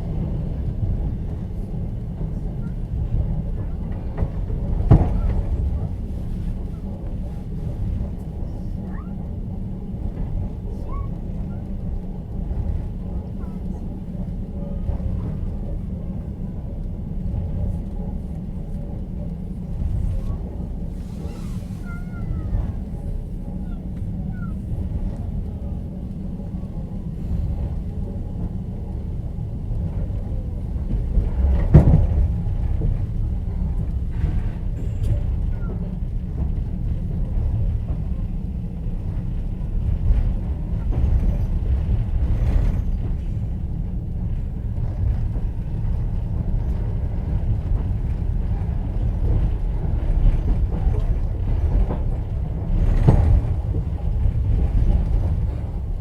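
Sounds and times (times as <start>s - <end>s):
train rumble: 0.0s - 56.0s
wheels knocking on rails: 26.4s - 56.0s.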